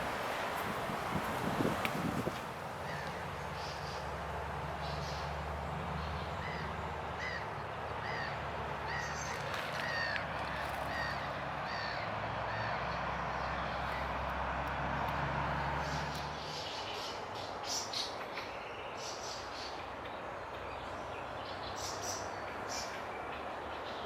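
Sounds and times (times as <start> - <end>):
bird calling: 6.4 - 12.8.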